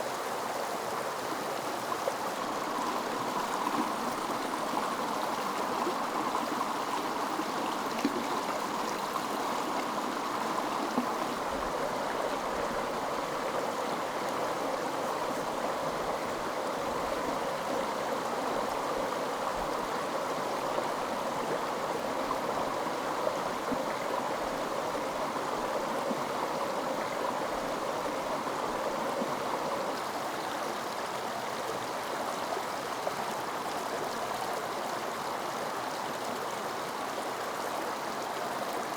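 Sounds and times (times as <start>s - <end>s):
mountain stream rushing and gurgling: 0.0s - 38.9s.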